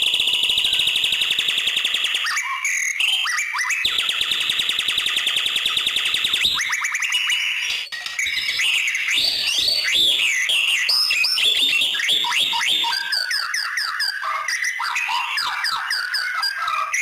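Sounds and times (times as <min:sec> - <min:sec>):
songbird trills and whistles: 0:00.0 - 0:17.0.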